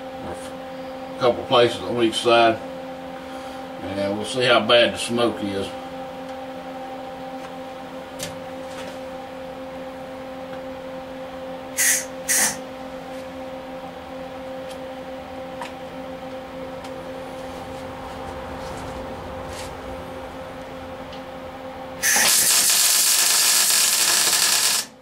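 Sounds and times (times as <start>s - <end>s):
steady hum: 0.0s - 25.0s
welder crackling hiss: 11.8s - 12.6s, 22.0s - 25.0s.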